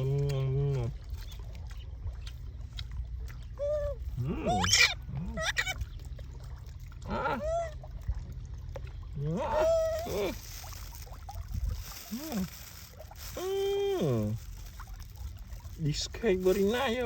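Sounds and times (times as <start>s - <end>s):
low background rumble: 0.0s - 17.0s
baby monkey squealing: 3.7s - 5.8s.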